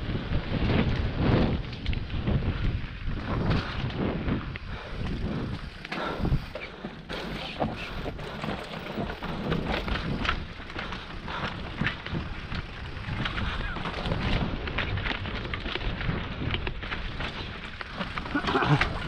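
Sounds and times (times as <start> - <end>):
bike rattling over dirt trail: 0.0 - 19.0
wind buffeting microphone: 0.0 - 19.0.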